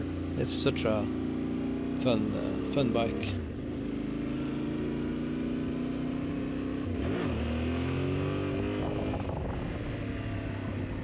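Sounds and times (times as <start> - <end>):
motorcycle engine revving: 1.0 - 11.0.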